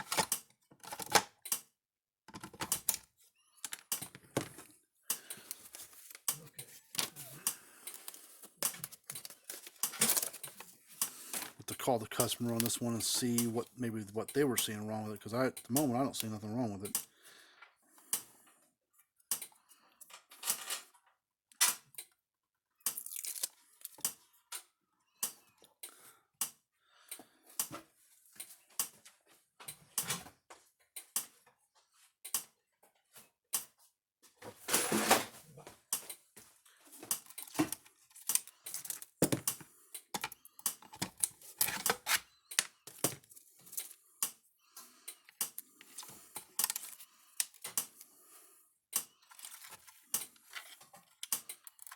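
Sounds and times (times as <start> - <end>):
tools clicking and knocking: 0.0 - 1.7, 2.3 - 3.0, 3.6 - 13.5, 37.0 - 44.4.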